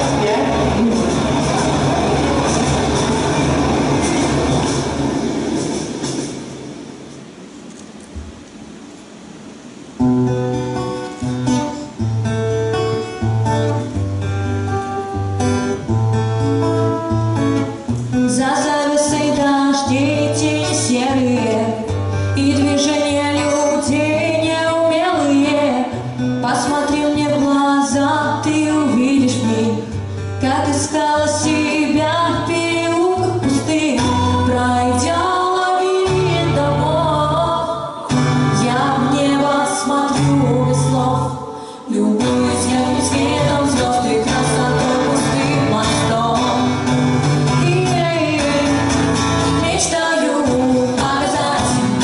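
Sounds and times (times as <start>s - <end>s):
guitar accompaniment: 0.0s - 52.0s
women singing: 18.3s - 52.0s.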